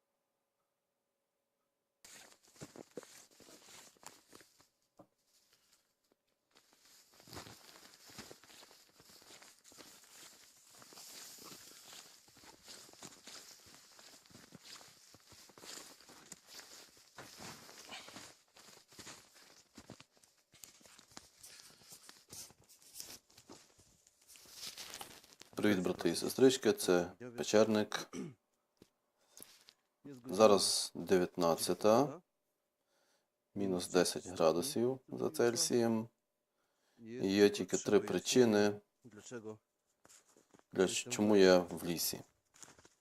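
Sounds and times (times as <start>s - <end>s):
footsteps crunching in snow: 2.1s - 25.8s, 40.0s - 40.8s, 42.2s - 43.0s.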